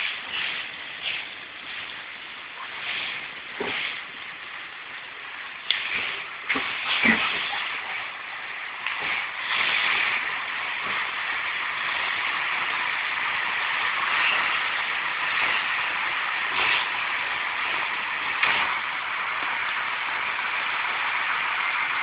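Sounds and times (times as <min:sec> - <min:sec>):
diesel train arriving slowly: 0:00.0 - 0:22.0.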